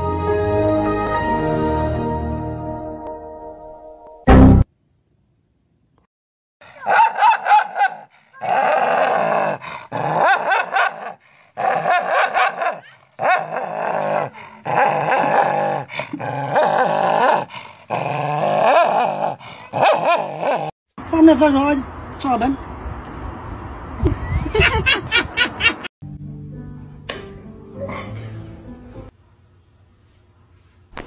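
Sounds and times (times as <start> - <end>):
dog growling and grumbling: 8.4 - 20.7.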